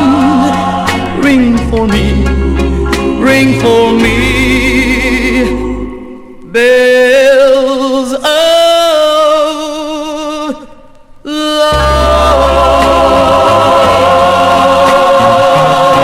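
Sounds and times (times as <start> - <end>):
band playing: 0.0 - 6.0, 11.7 - 16.0
voices singing with vibrato: 0.0 - 10.7, 11.3 - 16.0.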